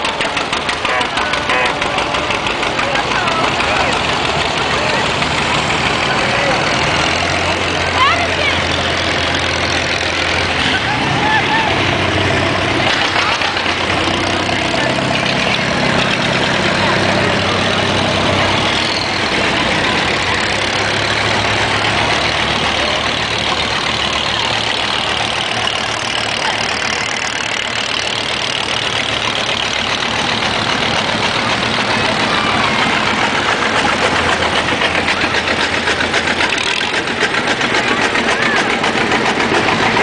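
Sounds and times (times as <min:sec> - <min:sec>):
tractor engines running: 0:00.0 - 0:40.0.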